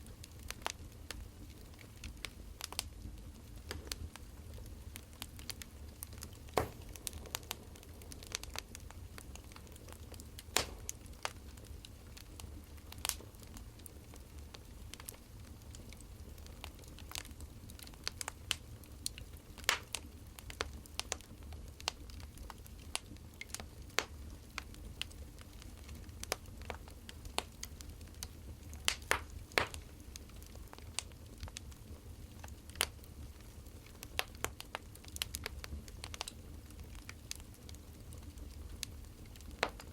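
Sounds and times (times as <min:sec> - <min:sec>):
firewood crackling and popping: 0:00.0 - 0:39.9
steady low rumble: 0:06.7 - 0:11.4.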